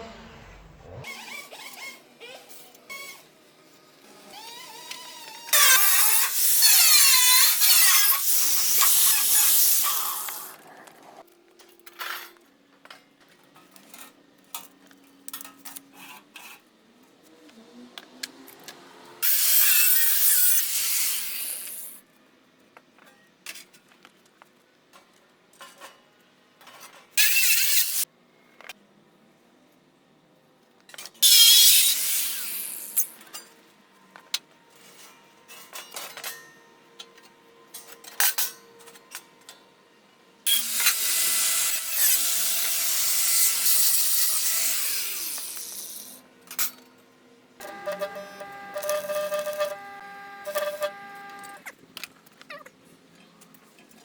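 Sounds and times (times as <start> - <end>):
power tool cutting sheet steel: 4.2 - 10.6, 19.2 - 22.0, 27.2 - 28.0, 31.2 - 33.1, 40.5 - 46.2, 47.6 - 51.6.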